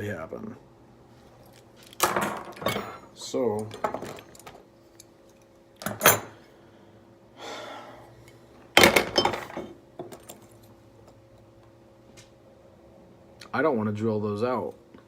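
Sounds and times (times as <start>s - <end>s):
clatter of metal parts: 1.5s - 4.6s.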